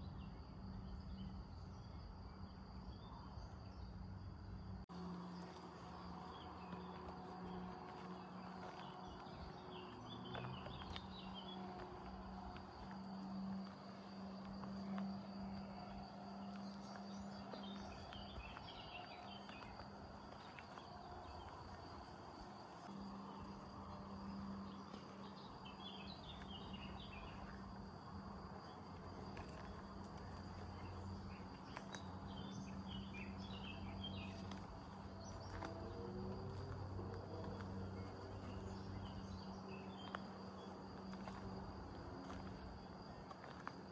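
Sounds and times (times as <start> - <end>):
insects chirring: 0.0 - 43.9
birds twittering: 16.4 - 21.0.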